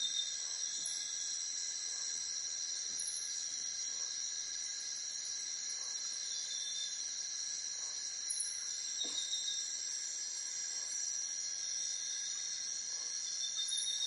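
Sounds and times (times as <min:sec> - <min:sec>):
crickets chorus: 0:00.0 - 0:14.0.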